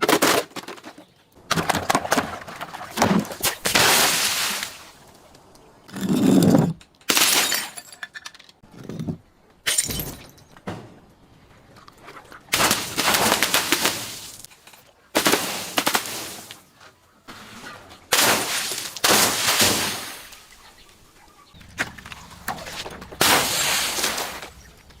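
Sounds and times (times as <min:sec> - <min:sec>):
glass being crushed: 0:05.9 - 0:08.4, 0:09.7 - 0:10.6.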